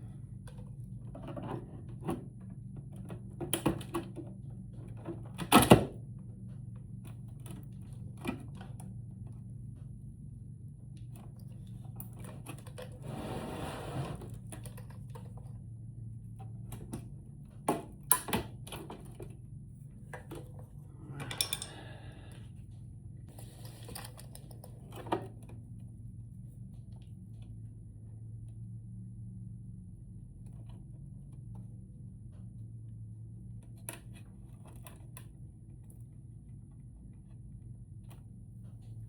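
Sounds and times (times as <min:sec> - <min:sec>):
steady low hum: 0:00.0 - 0:39.0
scraping on plastic: 0:12.8 - 0:14.6.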